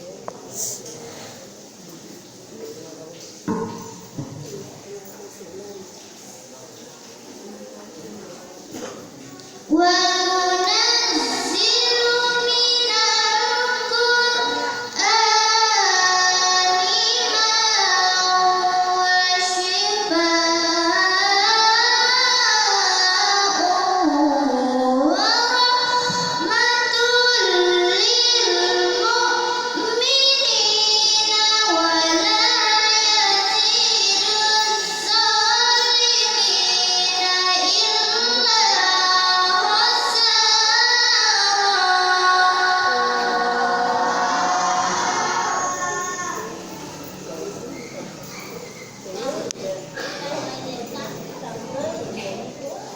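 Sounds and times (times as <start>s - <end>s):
girl chanting melodically: 9.7s - 46.8s.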